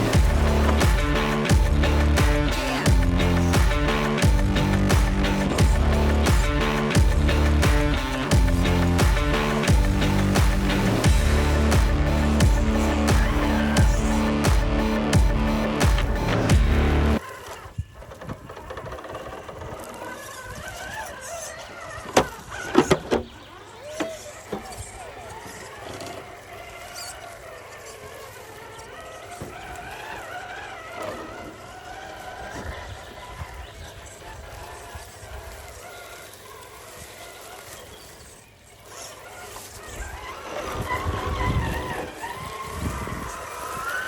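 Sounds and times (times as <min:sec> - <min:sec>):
electric motor whining: 0:00.0 - 0:23.1, 0:23.8 - 0:44.0
wind rumble on microphone: 0:40.7 - 0:44.0.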